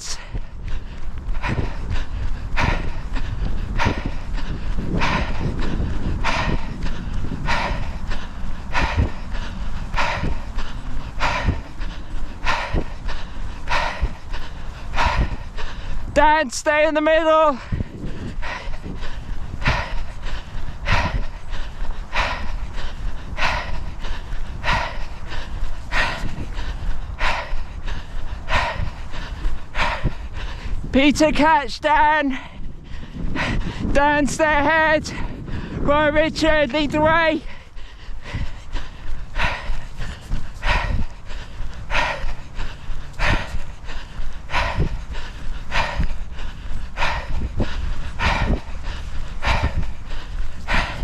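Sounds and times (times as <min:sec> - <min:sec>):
person breathing hard: 0:00.0 - 0:51.0
wind on microphone: 0:00.0 - 0:51.0
low rumble: 0:00.2 - 0:16.2.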